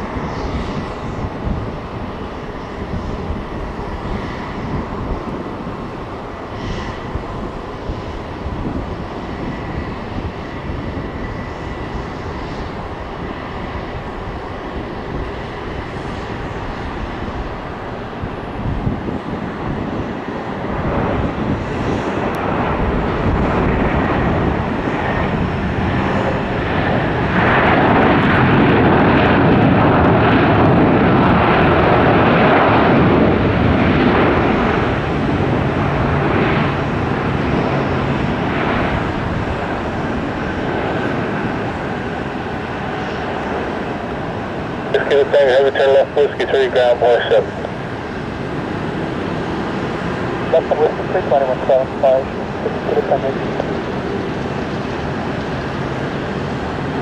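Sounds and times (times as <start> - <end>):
jet engines rushing: 0.0 - 57.0.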